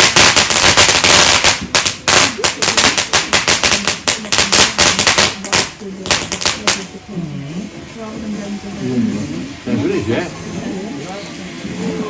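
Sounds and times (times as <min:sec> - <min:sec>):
fireworks cracks and bangs: 0:00.0 - 0:07.0.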